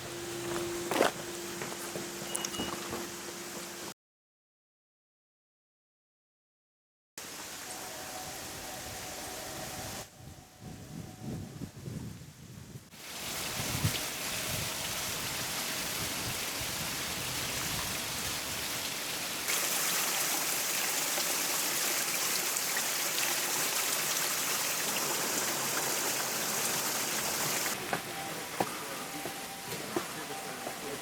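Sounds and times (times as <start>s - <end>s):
stream and waterfall rushing: 7.2s - 9.8s, 13.0s - 31.0s.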